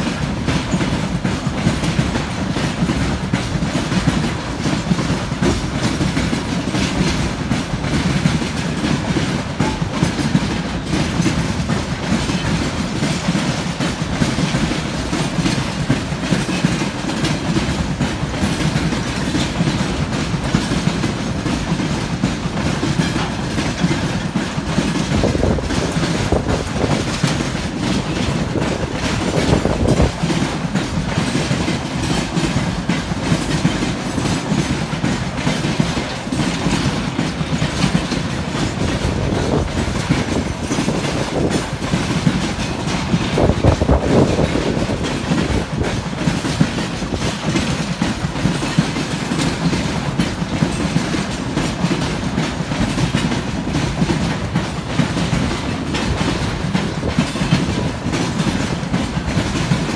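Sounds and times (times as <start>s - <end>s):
steel wheels rumbling on rails: 0.0s - 59.9s.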